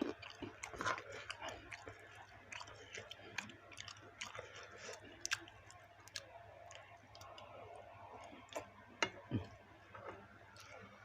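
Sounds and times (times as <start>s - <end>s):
close-up chewing: 0.0s - 8.7s.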